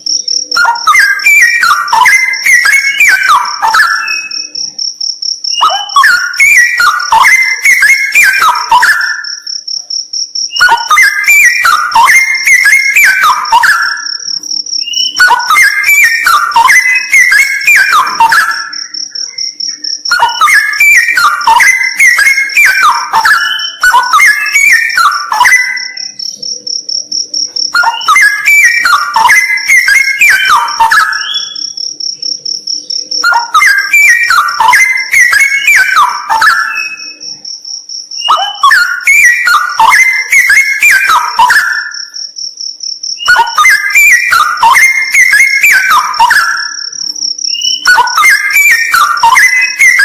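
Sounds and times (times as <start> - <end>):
bird singing bubbling phrases: 0.0 - 4.6, 5.5 - 9.3, 10.5 - 26.4, 27.8 - 31.8, 32.8 - 37.4, 38.2 - 42.1, 43.2 - 46.9, 47.5 - 50.0
cricket trilling: 0.0 - 50.0.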